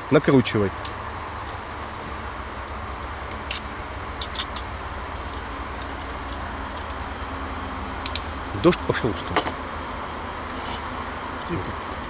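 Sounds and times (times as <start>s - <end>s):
low background rumble: 0.0s - 12.0s
light sharp clicks and taps: 3.0s - 8.4s.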